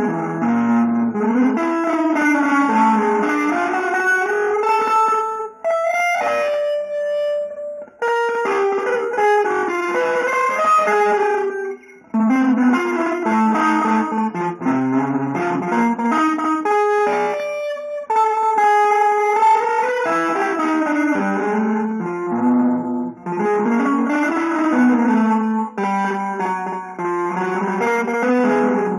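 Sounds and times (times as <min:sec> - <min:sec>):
free jazz guitar playing: 0:00.0 - 0:28.9.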